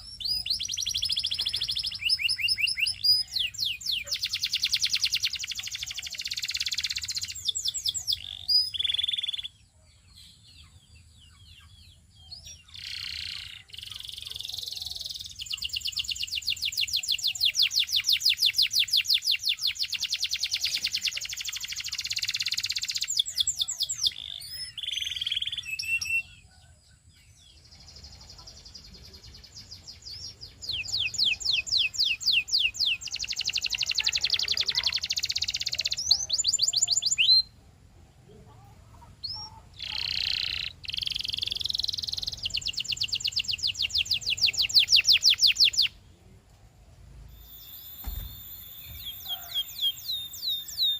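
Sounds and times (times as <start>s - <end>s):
canary singing trills: 0.0s - 46.0s, 47.3s - 50.9s.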